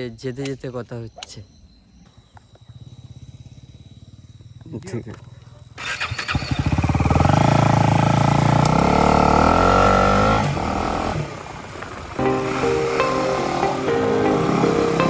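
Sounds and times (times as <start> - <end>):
motorcycle engine accelerating: 2.6 - 15.0
background music: 12.2 - 15.0.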